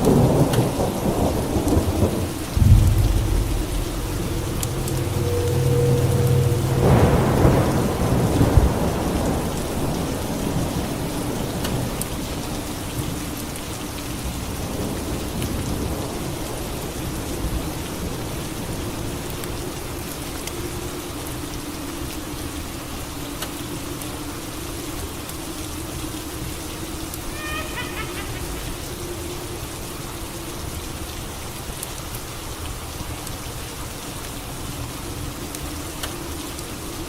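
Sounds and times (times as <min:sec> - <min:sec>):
steady rain: 0:00.0 - 0:37.0
thunder clap and rumble: 0:00.1 - 0:11.6.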